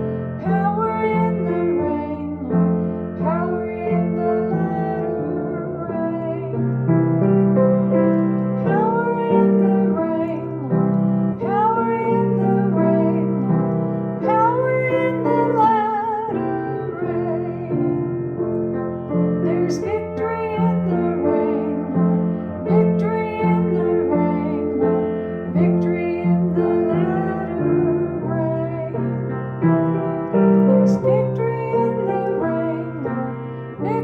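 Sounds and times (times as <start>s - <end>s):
keyboard accompaniment: 0.0s - 34.0s
woman singing gospel song: 0.4s - 2.5s, 3.2s - 6.6s, 8.7s - 10.7s, 11.4s - 13.4s, 14.2s - 17.8s, 19.5s - 24.8s, 25.5s - 29.0s, 30.9s - 34.0s.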